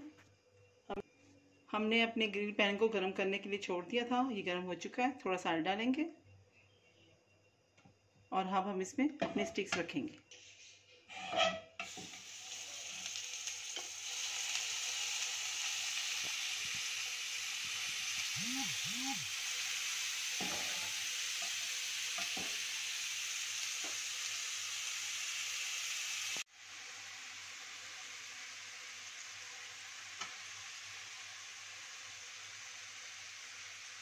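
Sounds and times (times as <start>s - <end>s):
skewers sizzling on grill pan: 11.1s - 34.0s.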